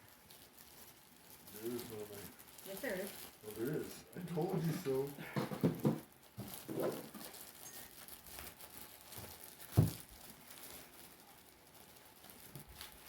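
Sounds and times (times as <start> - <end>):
packets tearing and crinkling: 0.0 - 13.0.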